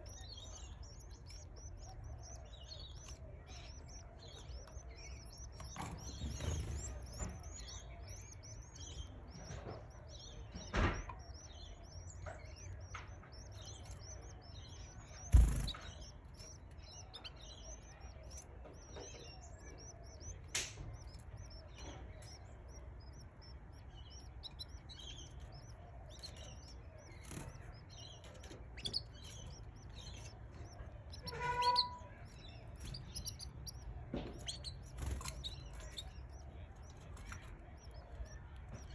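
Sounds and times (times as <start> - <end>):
bird chicks cheeping: 0.0 - 38.9
pitched squeak: 31.1 - 32.4.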